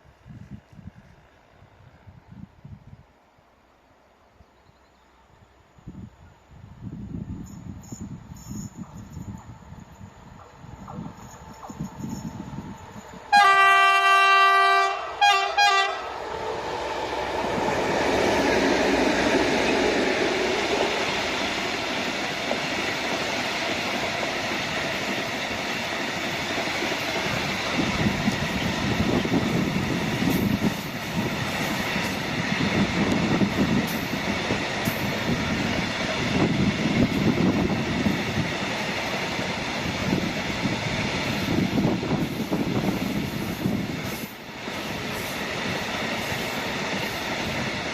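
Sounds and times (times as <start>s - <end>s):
train wheels rumbling and clacking: 7.5s - 13.3s, 15.3s - 47.9s
locomotive horn blasts: 13.3s - 16.1s.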